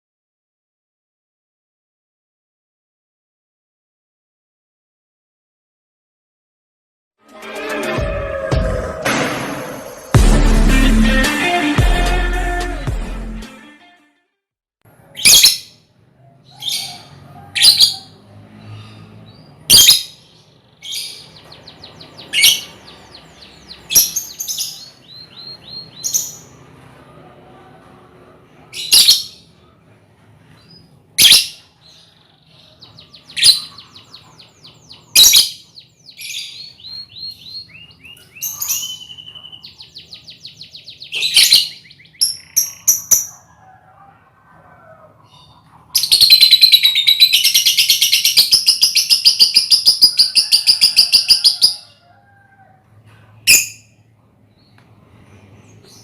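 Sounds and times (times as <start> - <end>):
lovebirds chirping and trilling: 15.1 - 56.0.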